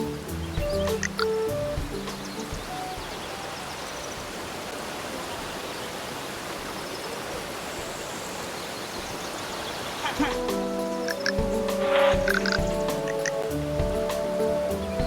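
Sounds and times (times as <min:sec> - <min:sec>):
steady rushing noise: 0:06.1 - 0:15.0.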